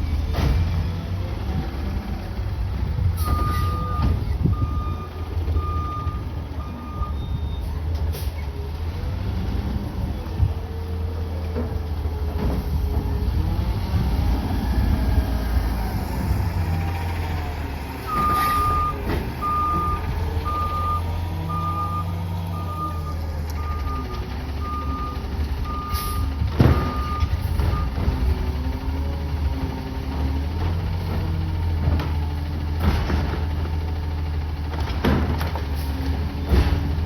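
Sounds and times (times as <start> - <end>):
garbage truck engine running: 0.0 - 37.0
reverse alarm beeping: 18.1 - 27.9.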